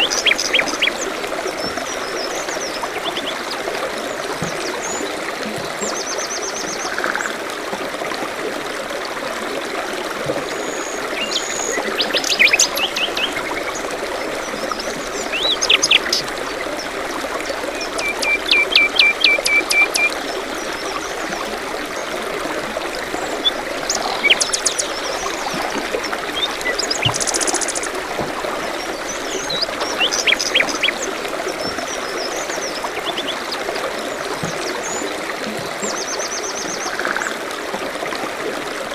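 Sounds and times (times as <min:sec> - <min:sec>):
songbirds singing: 0:00.0 - 0:05.1, 0:10.5 - 0:22.1, 0:23.0 - 0:37.1
stream trickling: 0:00.0 - 0:38.9.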